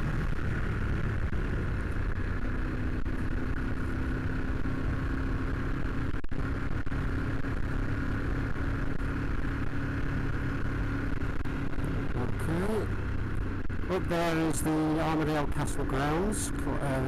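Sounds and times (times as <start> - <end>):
motorcycle engine running: 0.0 - 17.0
road rumble: 0.0 - 17.0
wind: 0.0 - 17.0.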